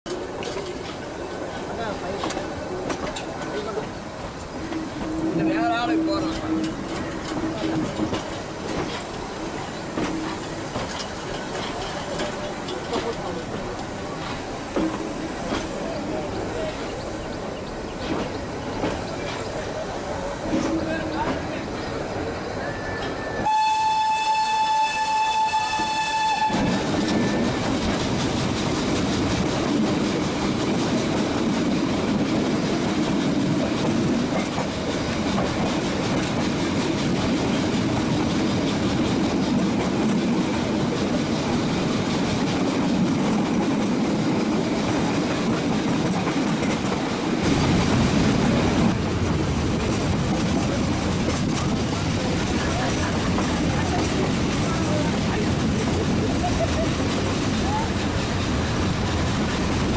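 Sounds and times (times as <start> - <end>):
train coaches rumbling and rattling: 0.0 - 59.9
train horn: 23.1 - 27.6.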